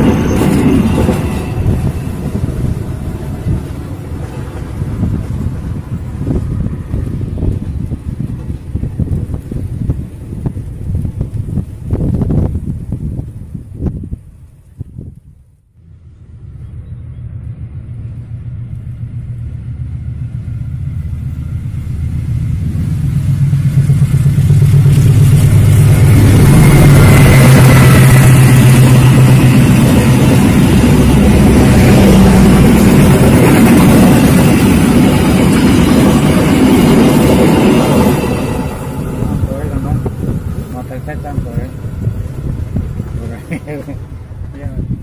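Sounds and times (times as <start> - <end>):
train wheels rumbling on rails: 0.0 - 45.0
locomotive engine drone: 15.8 - 45.0.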